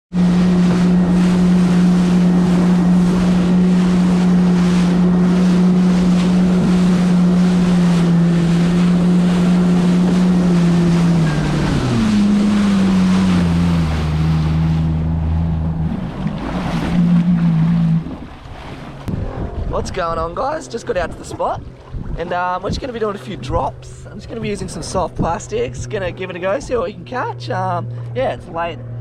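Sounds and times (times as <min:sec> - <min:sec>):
wind and spray: 0:00.1 - 0:27.1
jet ski engine running: 0:00.1 - 0:29.0.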